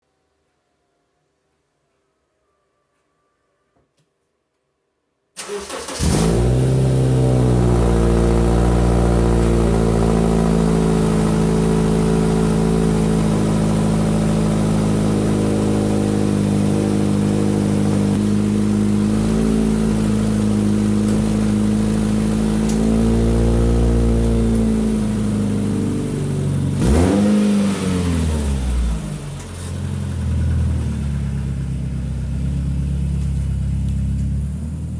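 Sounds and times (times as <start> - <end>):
car engine starting and idling: 5.4 - 34.9
loud exhaust note: 6.0 - 33.3.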